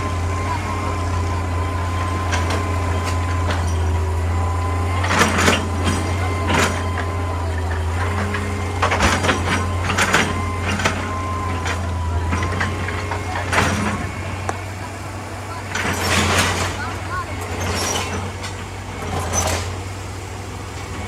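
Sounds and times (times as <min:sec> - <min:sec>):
excavator diesel engine running: 0:00.0 - 0:21.0
rock clanking and scraping: 0:00.1 - 0:15.0, 0:15.6 - 0:19.9.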